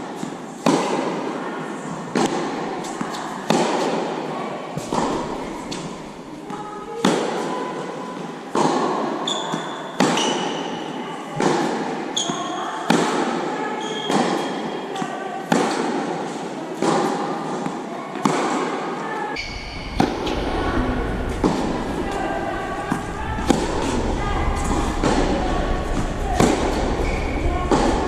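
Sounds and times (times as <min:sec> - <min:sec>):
tennis balls struck by rackets: 0:02.1 - 0:04.0, 0:04.8 - 0:07.5, 0:14.0 - 0:18.6, 0:19.5 - 0:28.0
shoe squeaks on court: 0:09.2 - 0:10.6, 0:13.8 - 0:14.6.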